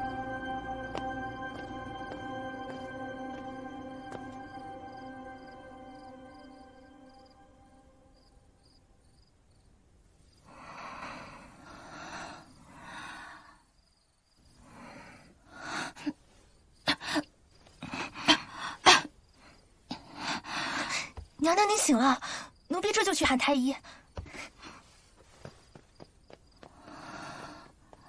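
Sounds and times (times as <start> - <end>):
woman breathing heavily: 10.5 - 13.6, 16.9 - 21.3, 26.6 - 28.0.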